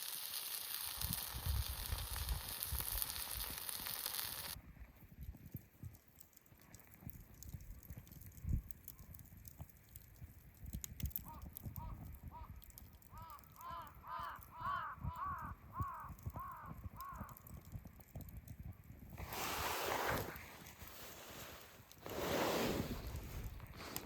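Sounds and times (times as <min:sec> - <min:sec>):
campfire crackling: 0:00.0 - 0:24.0
crow cawing: 0:13.1 - 0:17.4.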